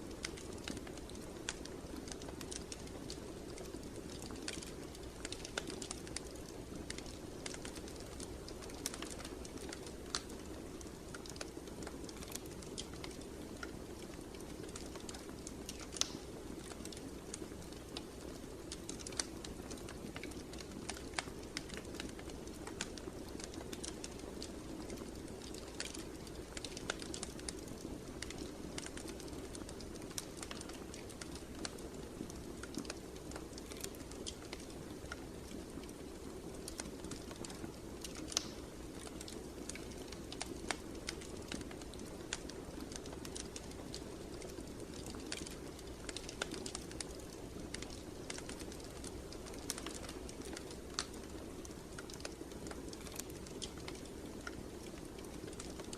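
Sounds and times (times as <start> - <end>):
wood fire crackling: 0.0 - 55.9
small sharp pops: 15.7 - 16.3, 37.4 - 38.6.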